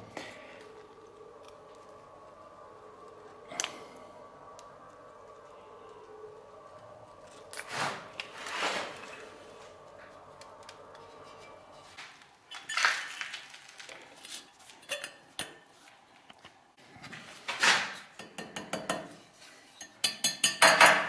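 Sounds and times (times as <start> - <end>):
scraping rustles: 7.1 - 15.0.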